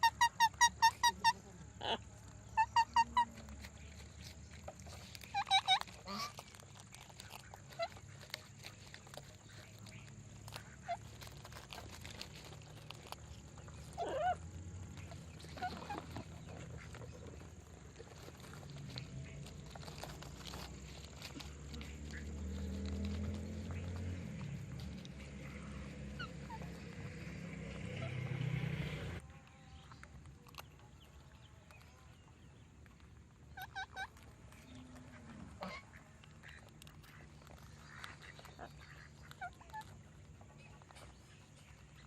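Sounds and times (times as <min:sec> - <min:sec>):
parrots squawking: 0:00.0 - 0:03.6, 0:04.9 - 0:06.6, 0:13.6 - 0:17.5, 0:25.1 - 0:29.0, 0:33.5 - 0:40.1
parrot calls and chirps: 0:00.0 - 0:04.2, 0:04.8 - 0:06.6, 0:13.3 - 0:17.5, 0:23.7 - 0:28.4, 0:33.4 - 0:37.2.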